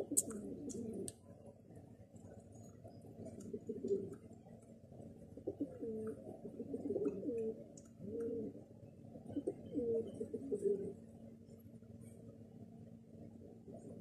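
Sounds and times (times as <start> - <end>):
bird cooing: 0.0 - 1.2, 2.9 - 4.4, 5.0 - 11.1.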